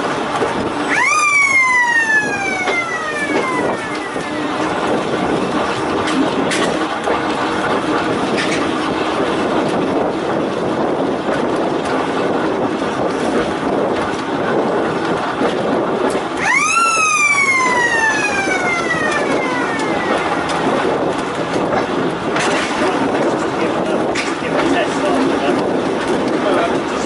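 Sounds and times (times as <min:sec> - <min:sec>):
electric railway car rumbling: 0:00.0 - 0:27.0
high sliding tone: 0:16.4 - 0:20.8.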